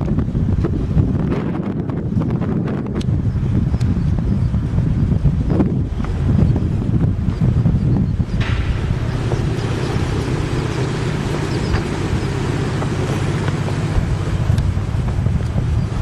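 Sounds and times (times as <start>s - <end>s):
engine rumble: 0.0s - 16.0s
wind buffeting microphone: 0.0s - 16.0s.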